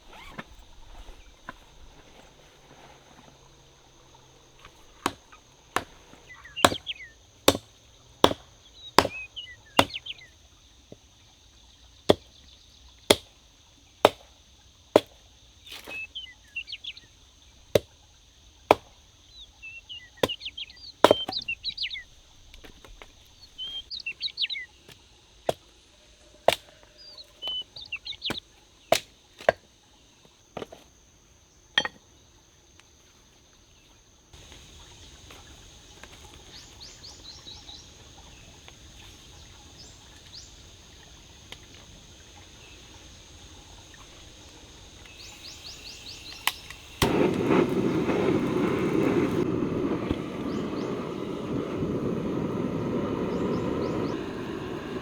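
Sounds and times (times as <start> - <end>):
blade chopping wood: 0.0 - 10.2, 12.1 - 12.4, 13.1 - 13.4, 14.0 - 14.3, 15.0 - 16.0, 17.7 - 17.9, 18.7 - 19.0, 20.2 - 23.9, 24.9 - 25.7, 26.4 - 26.8, 28.3 - 29.7, 45.1 - 51.0
birds chirping: 0.0 - 10.6, 15.7 - 25.0, 25.6 - 29.0, 34.4 - 55.0.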